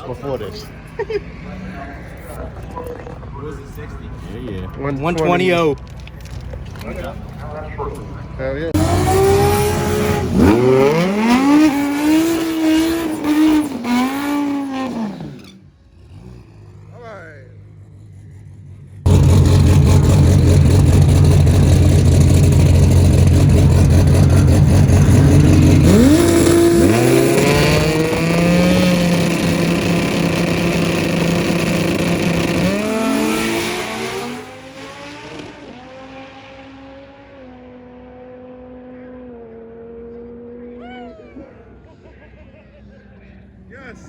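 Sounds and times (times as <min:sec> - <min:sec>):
drag race car engine accelerating: 0:08.7 - 0:40.8.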